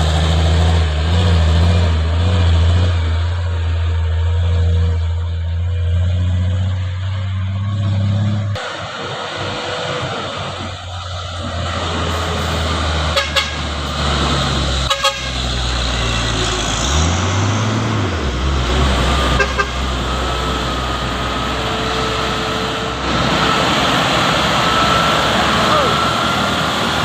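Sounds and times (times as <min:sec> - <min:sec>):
truck engine running: 0:00.0 - 0:27.0
horn toots: 0:12.1 - 0:14.0, 0:14.7 - 0:17.0, 0:19.2 - 0:20.6.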